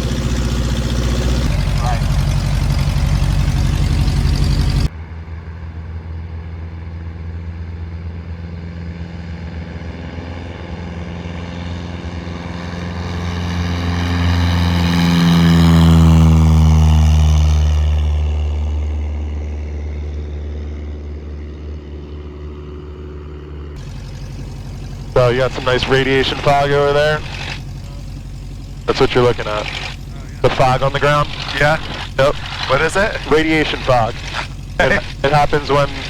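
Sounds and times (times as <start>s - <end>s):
piston engine idling: 0.0s - 4.9s, 22.3s - 36.0s
propeller plane passing: 0.0s - 36.0s.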